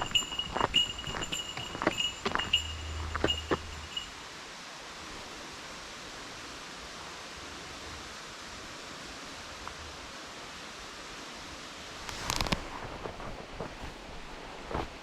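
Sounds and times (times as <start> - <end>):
flowing water hiss: 0.0 - 15.0.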